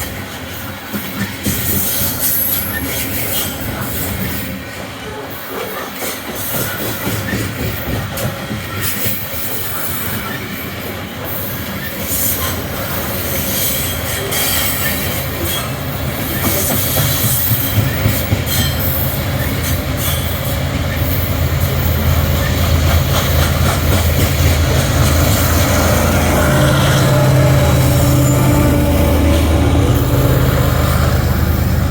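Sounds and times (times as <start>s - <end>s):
freight train rolling past: 0.0s - 31.9s
wheels squealing on rails: 0.0s - 31.9s
wheels clicking over rail joints: 13.5s - 25.7s.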